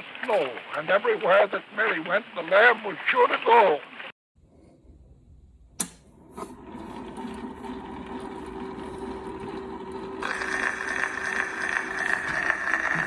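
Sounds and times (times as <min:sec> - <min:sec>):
record surface hiss: 0:00.0 - 0:04.1
phonograph mechanical hum: 0:05.7 - 0:13.0.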